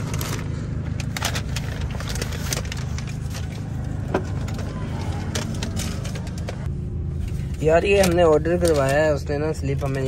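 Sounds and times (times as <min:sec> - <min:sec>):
paper bag rustling: 0:00.0 - 0:06.7
car engine idling: 0:00.0 - 0:10.0.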